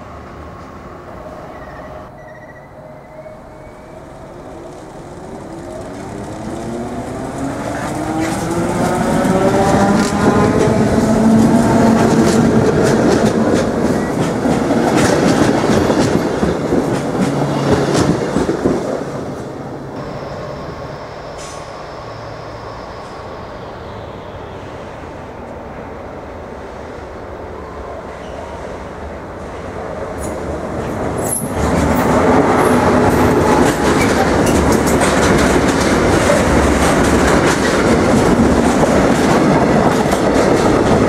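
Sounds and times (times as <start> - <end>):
steady train rumble: 0.0 - 41.0
train motor whine: 2.2 - 12.1, 20.0 - 23.9
wheels clicking over rail joints: 4.0 - 19.0, 32.7 - 41.0.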